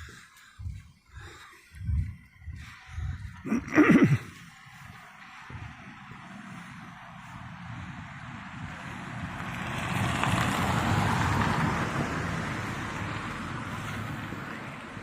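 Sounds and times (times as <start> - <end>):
vehicle passing by: 4.4 - 15.0.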